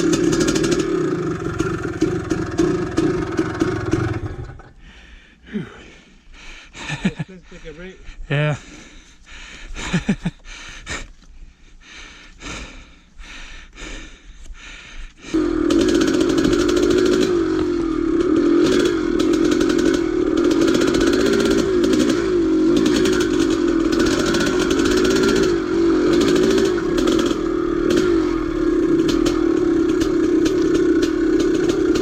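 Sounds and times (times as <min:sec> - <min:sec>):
dirtbike engine running: 0:00.0 - 0:04.8, 0:06.8 - 0:07.3, 0:15.2 - 0:32.0.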